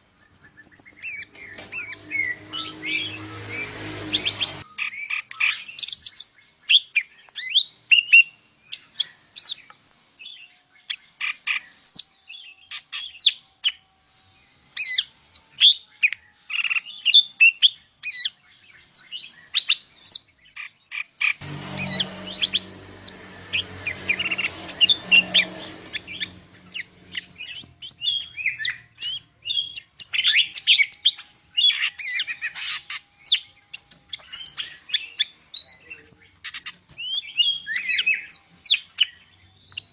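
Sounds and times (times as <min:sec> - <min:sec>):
bird singing chirps and whistles: 0:26.0 - 0:39.9.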